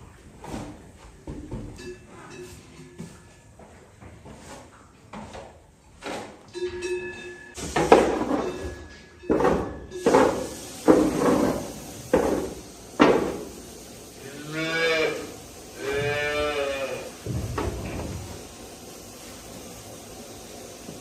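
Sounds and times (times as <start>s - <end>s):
cow mooing: 14.2s - 17.2s.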